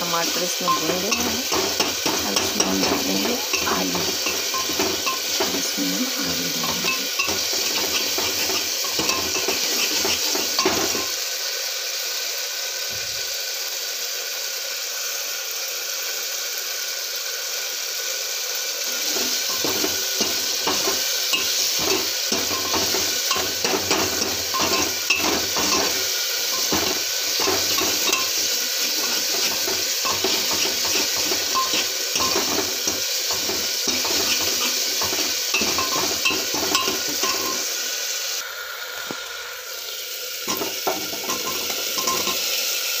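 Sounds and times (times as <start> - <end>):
vegetables sizzling in oil: 0.0 - 43.0
spoon scraping a pan: 0.2 - 11.2, 18.9 - 37.8, 40.5 - 42.6.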